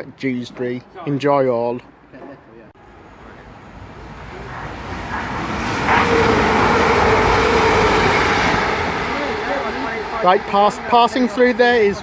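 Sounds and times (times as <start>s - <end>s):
tone under train noise: 2.8s - 12.0s
train passing: 2.8s - 12.0s.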